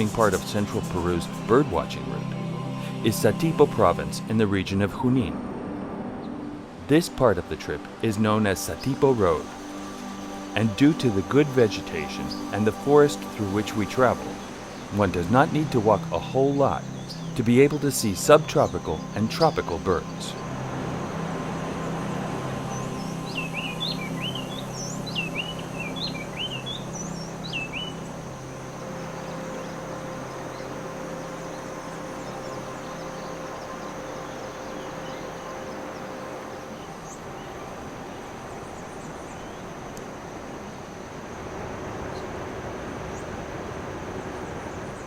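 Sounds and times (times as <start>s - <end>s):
bird chirping: 0.0s - 4.5s, 7.9s - 20.6s, 21.5s - 39.7s
forest ambience hiss: 0.0s - 45.0s.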